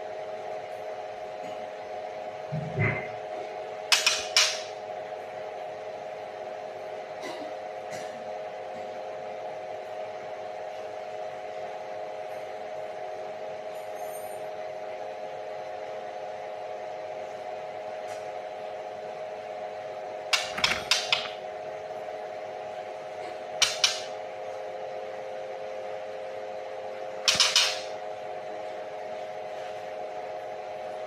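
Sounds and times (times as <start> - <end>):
steady mechanical hum: 0.0 - 31.0.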